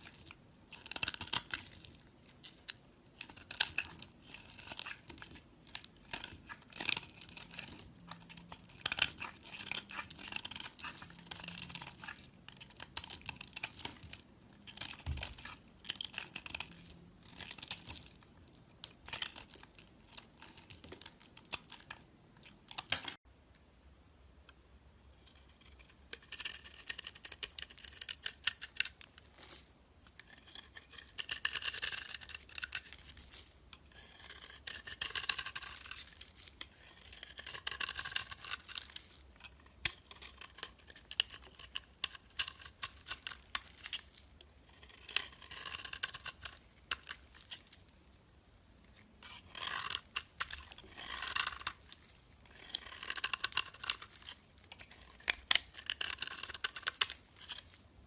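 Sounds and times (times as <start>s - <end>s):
brittle material crunching: 0.0s - 23.2s, 34.3s - 48.0s, 48.9s - 57.8s.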